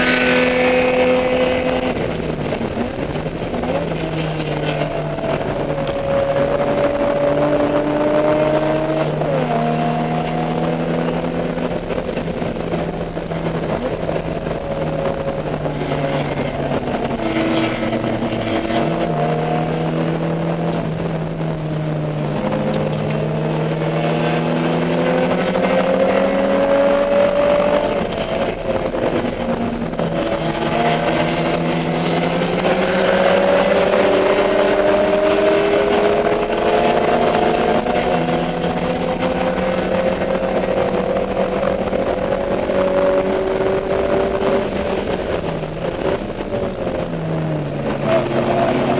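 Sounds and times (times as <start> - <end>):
race car engine accelerating: 0.0 - 48.9
road and wind noise: 0.0 - 48.9.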